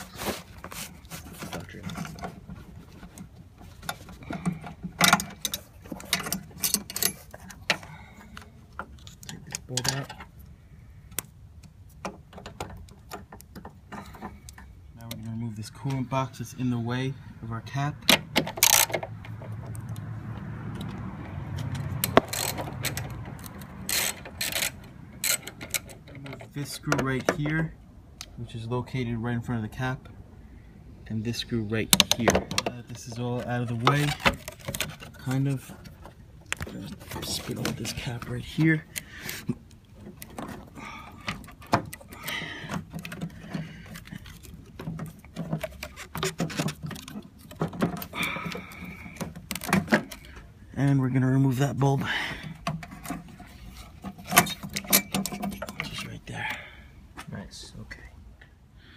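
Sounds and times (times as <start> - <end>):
hand tools clicking and scraping: 0.0 - 10.4, 18.0 - 20.1, 20.7 - 27.6, 31.4 - 57.3.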